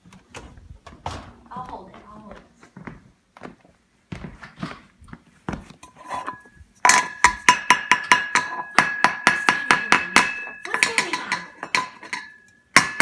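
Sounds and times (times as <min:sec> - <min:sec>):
metal kitchenware being banged: 0:05.8 - 0:13.0.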